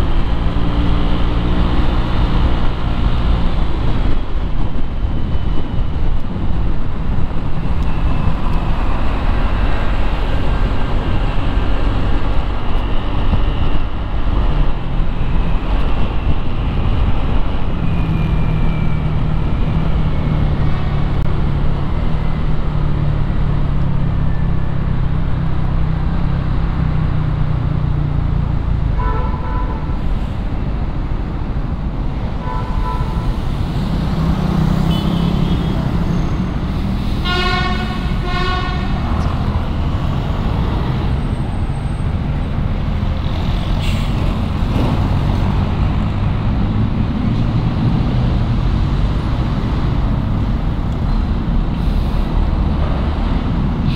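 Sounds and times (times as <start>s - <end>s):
street traffic: 0.0s - 53.9s.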